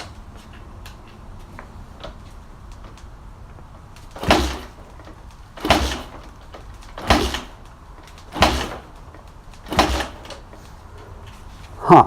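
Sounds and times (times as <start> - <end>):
motorcycle kick start attempts: 3.8 - 11.4.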